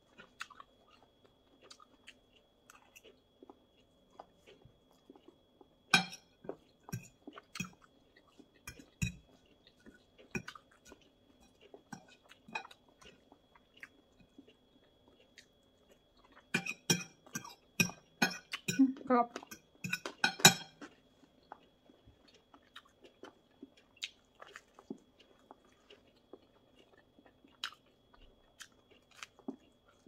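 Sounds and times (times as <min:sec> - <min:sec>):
person chewing: 0:00.0 - 0:30.0
fork clinking on a plate: 0:05.9 - 0:06.2, 0:16.6 - 0:18.8, 0:19.5 - 0:20.8.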